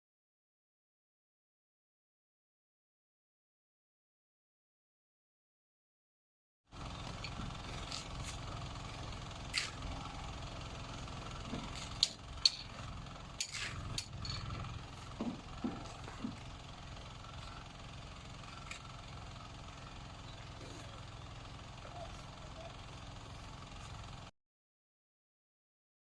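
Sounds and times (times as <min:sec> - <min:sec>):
low construction rumble: 0:06.7 - 0:24.3.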